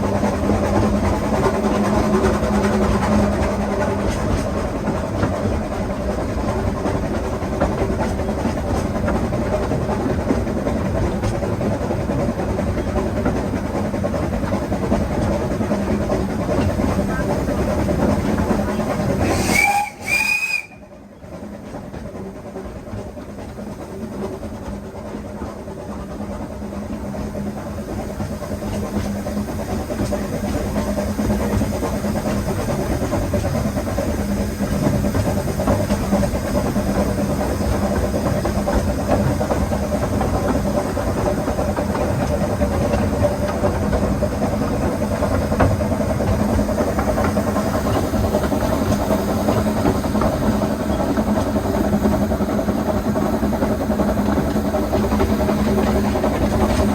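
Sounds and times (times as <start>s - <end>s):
steam locomotive train rumbling: 0.0s - 56.9s.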